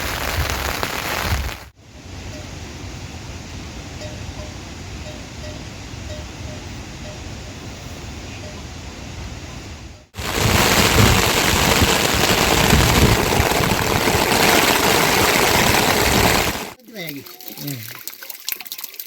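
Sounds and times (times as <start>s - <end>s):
heavy rain hissing: 0.0s - 6.1s, 7.6s - 16.8s.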